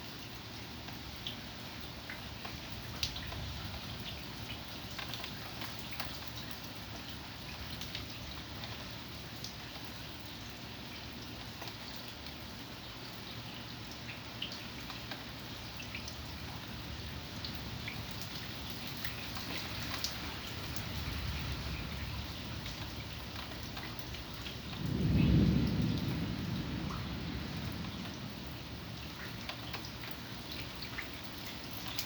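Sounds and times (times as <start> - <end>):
steady rain: 0.0 - 32.0
raindrops ticking: 0.7 - 32.0
thunder rumble: 16.2 - 29.8.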